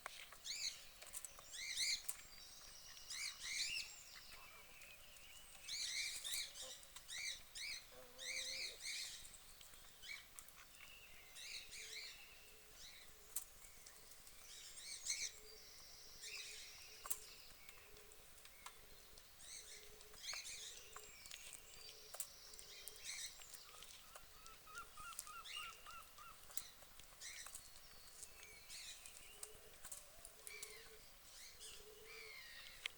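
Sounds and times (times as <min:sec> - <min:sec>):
birds chirping: 0:00.1 - 0:32.9
softer lower bird calls: 0:23.0 - 0:26.4.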